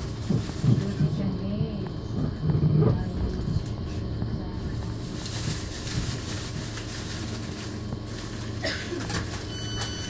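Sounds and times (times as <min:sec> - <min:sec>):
steady low hum: 0:00.0 - 0:10.0
high electronic door beeping: 0:09.5 - 0:10.0.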